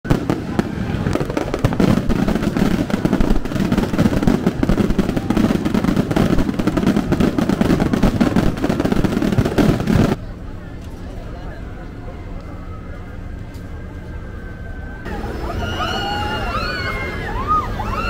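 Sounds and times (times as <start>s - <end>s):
fireworks bangs and crackles: 0.0s - 10.3s.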